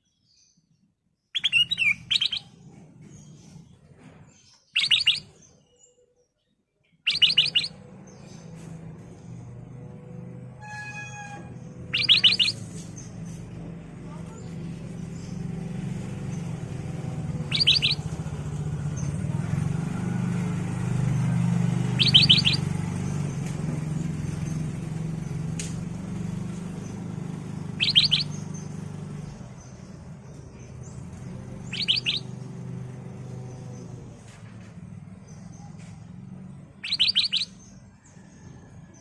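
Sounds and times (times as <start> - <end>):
bird calling sharp notes: 1.4 - 2.5, 4.8 - 5.3, 7.1 - 7.8, 10.6 - 13.2, 17.3 - 18.3, 21.8 - 23.2, 27.6 - 28.8, 31.6 - 32.4, 36.8 - 37.6.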